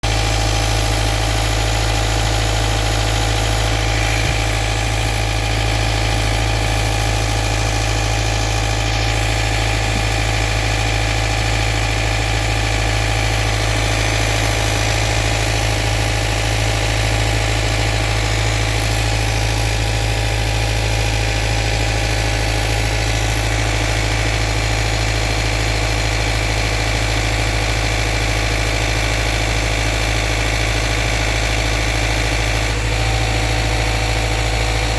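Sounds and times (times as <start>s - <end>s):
car engine idling with a knock: 0.0s - 20.1s.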